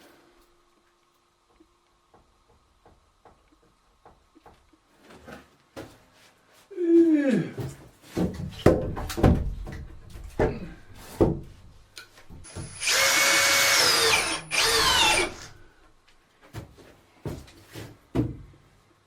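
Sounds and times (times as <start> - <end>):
power drill whining: 12.5 - 15.6.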